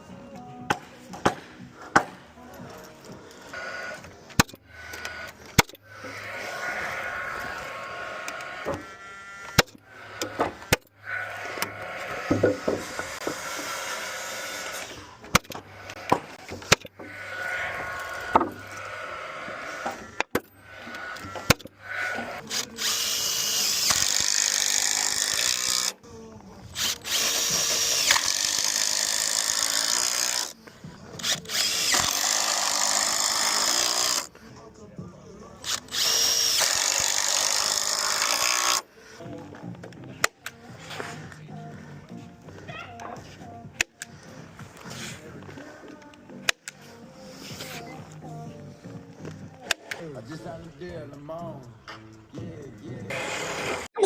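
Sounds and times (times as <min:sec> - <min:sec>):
wood and tools knocking: 0:00.7 - 0:03.2, 0:12.2 - 0:13.7
power tool running: 0:03.2 - 0:26.0, 0:26.8 - 0:34.3, 0:35.6 - 0:38.9, 0:53.1 - 0:53.9.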